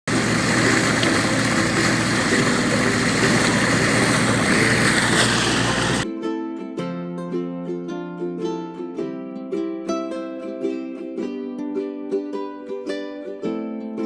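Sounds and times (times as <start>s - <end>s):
boat engine running: 0.0s - 6.0s
water noise: 0.0s - 6.1s
wind: 0.0s - 14.0s
ukulele music: 0.1s - 14.0s.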